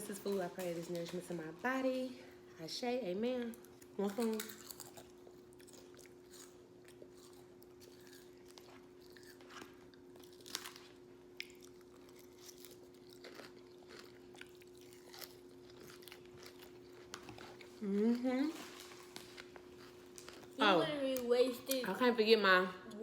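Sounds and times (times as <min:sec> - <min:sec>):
steady low hum: 0:00.0 - 0:23.0
crunchy chewing: 0:03.6 - 0:20.6.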